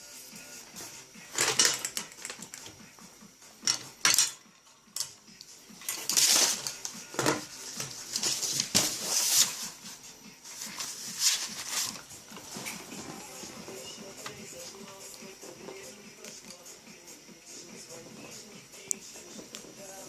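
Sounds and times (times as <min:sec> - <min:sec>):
plastic pens clicking and clattering: 0:01.3 - 0:02.7.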